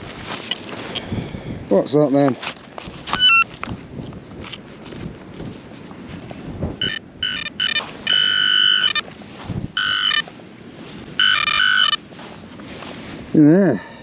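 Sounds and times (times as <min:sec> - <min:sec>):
metal detector beeping: 0:03.1 - 0:03.5, 0:06.8 - 0:09.1, 0:09.8 - 0:10.3, 0:11.2 - 0:12.0.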